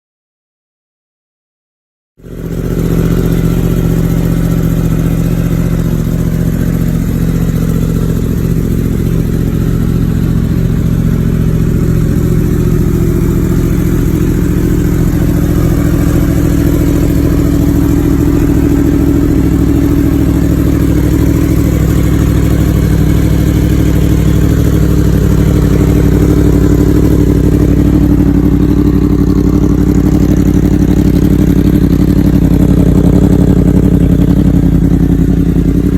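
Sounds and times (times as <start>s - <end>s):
motorcycle engine idling: 2.2s - 35.9s.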